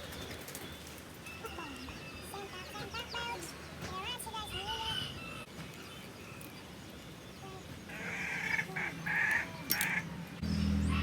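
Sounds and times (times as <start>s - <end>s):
chickens squawking: 7.9s - 10.1s.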